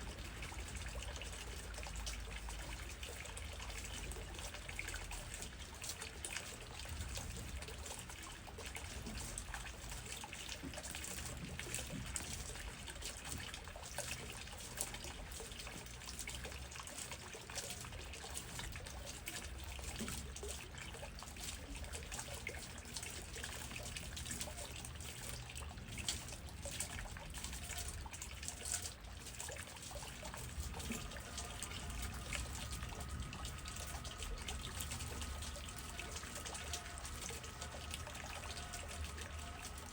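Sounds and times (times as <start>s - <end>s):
rain falling on trees: 30.1s - 39.9s.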